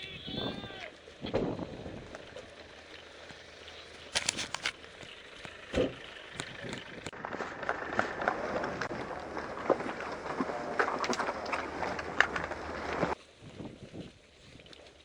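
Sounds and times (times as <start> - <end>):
crunchy footsteps outdoors: 0.0 - 15.0
thump: 1.3 - 1.6
sharp clicks: 4.1 - 5.6.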